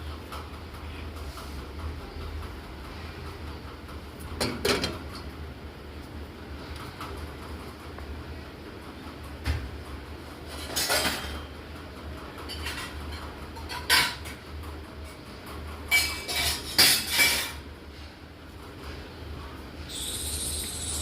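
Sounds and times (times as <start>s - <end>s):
dishes and cutlery clinking: 10.5s - 11.5s, 12.5s - 14.4s, 15.9s - 17.6s.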